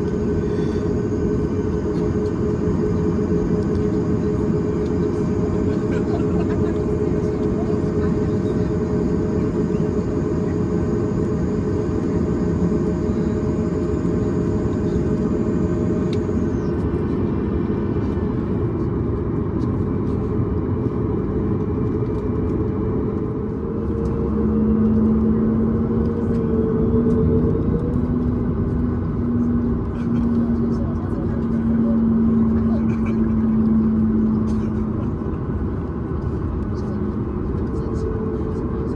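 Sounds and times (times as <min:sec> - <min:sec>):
high whine: 0:00.0 - 0:18.5
aircraft engine rumble: 0:00.0 - 0:38.9
low hum: 0:00.0 - 0:38.9.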